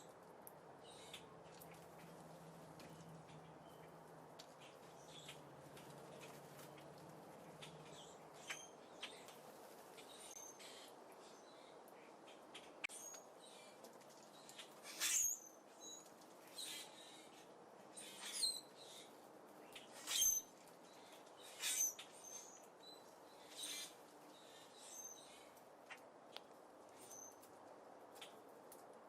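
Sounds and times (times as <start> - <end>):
small songbirds chirping: 0.8 - 28.8.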